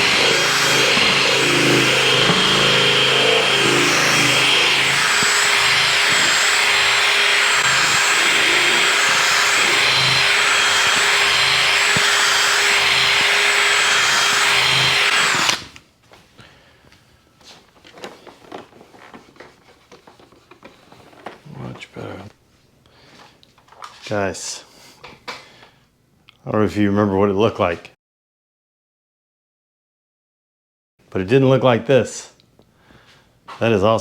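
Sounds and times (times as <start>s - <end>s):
electric drill polishing: 0.0s - 15.7s
handling noises: 17.4s - 22.3s.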